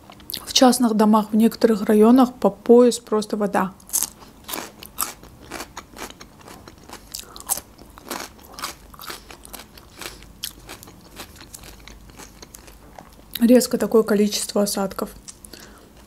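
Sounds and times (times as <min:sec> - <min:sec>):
crunchy chewing: 0:03.9 - 0:13.3.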